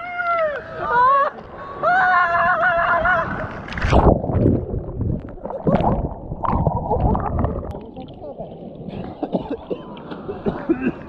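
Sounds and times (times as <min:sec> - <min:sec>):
rushing splashing water: 0:03.2 - 0:09.1.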